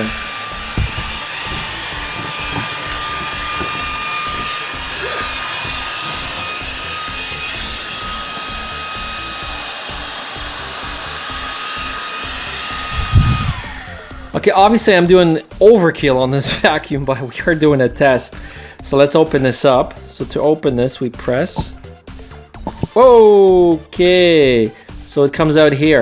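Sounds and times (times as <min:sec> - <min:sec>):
stick vacuum running: 0:00.0 - 0:14.8.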